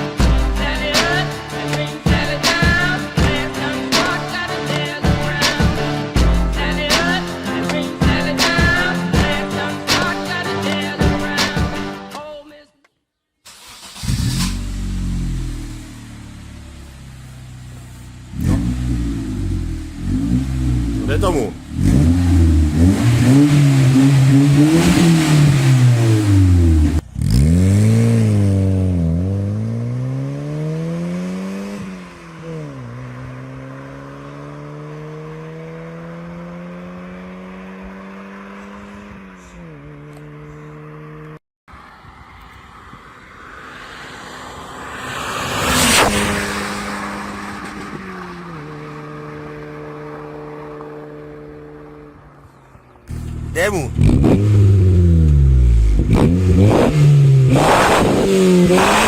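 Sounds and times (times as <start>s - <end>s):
car engine revving: 13.5s - 41.4s, 43.3s - 59.0s
loud rushing surge: 42.0s - 47.9s.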